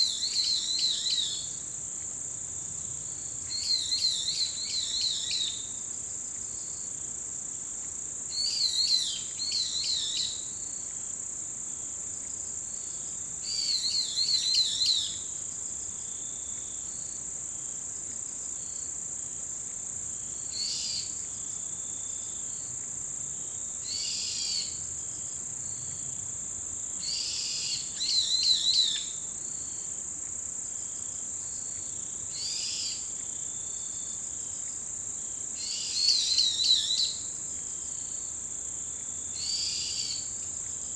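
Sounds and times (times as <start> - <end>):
insects trilling: 23.4 - 40.9.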